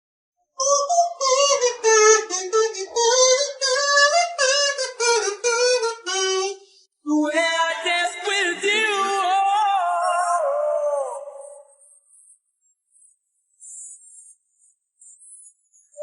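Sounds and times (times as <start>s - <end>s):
music with high singing voice: 0.6s - 11.8s.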